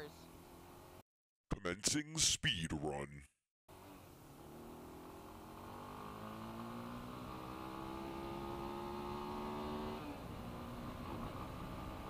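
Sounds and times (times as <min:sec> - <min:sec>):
quad engine revving and shifting: 0:03.7 - 0:12.0.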